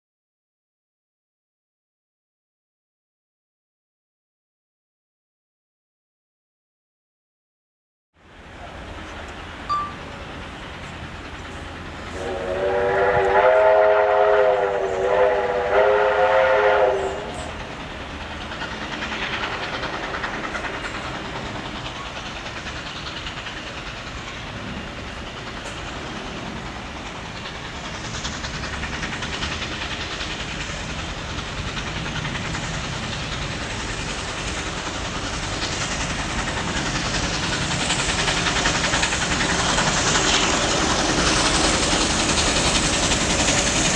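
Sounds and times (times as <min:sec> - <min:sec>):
train running noise: 0:08.2 - 0:43.9
steam locomotive whistle: 0:12.1 - 0:17.6.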